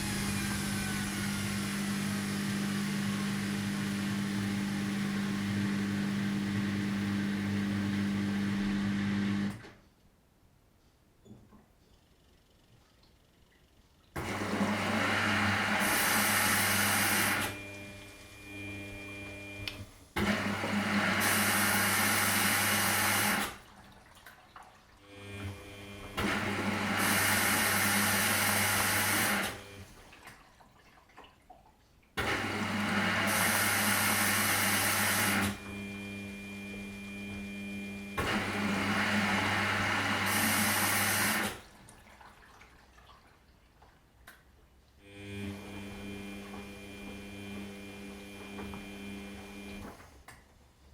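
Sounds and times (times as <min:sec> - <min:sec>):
rushing water in washing machine: 0:00.0 - 0:09.0, 0:14.2 - 0:19.5, 0:20.2 - 0:35.8, 0:38.2 - 0:44.0
washing machine hum: 0:00.0 - 0:09.8, 0:14.1 - 0:44.3, 0:45.0 - 0:50.9.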